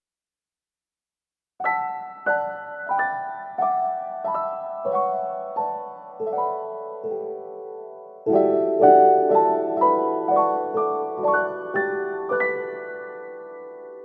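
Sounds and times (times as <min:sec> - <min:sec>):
piano music: 0:01.6 - 0:14.0.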